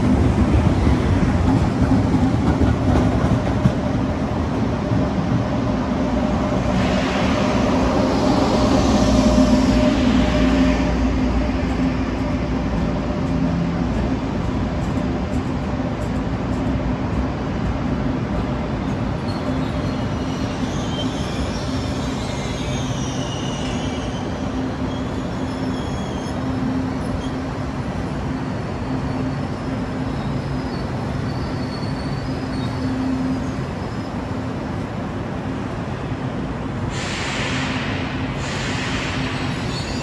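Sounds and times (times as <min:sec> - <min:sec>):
electric train humming and rumbling: 0:00.0 - 0:40.0
high wheel squeal: 0:19.2 - 0:27.4, 0:28.3 - 0:34.2.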